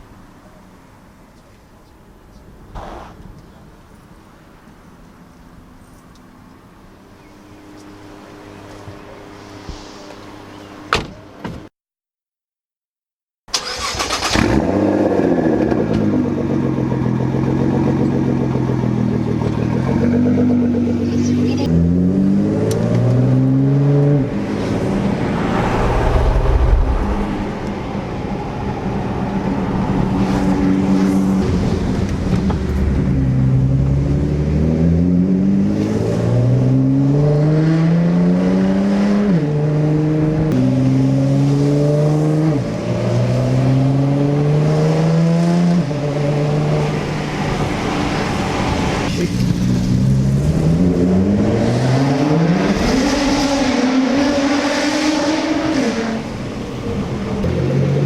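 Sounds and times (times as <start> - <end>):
car engine accelerating: 13.5 - 58.0.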